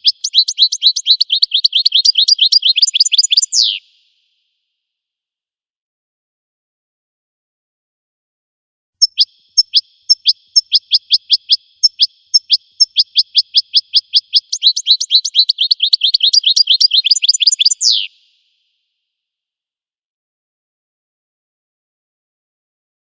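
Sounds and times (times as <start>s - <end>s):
goldfinch song: 0.0s - 4.2s, 9.0s - 18.5s.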